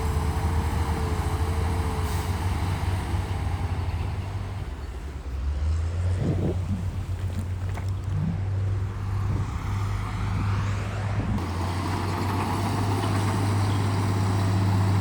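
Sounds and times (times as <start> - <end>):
heavy machinery diesel engine: 0.0 - 15.0.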